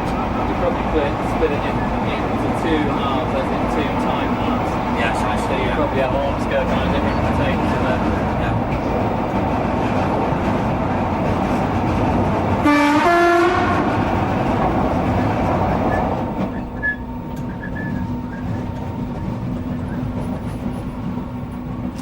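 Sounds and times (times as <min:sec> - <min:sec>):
electric train running: 0:00.0 - 0:22.0
two-note train horn blast: 0:12.6 - 0:14.0.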